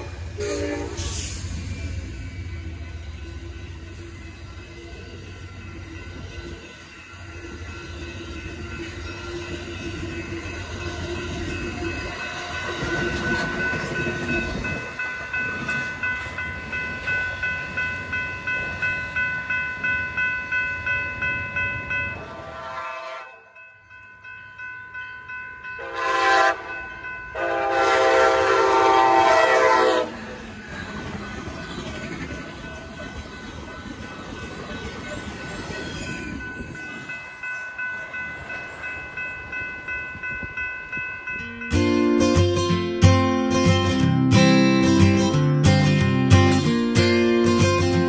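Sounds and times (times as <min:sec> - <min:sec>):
locomotive horn: 0:00.0 - 0:01.2, 0:22.2 - 0:23.5, 0:25.8 - 0:26.8, 0:27.4 - 0:30.2
train rumbling past: 0:00.0 - 0:23.4, 0:25.2 - 0:48.0
crossing bell ringing: 0:00.0 - 0:48.0.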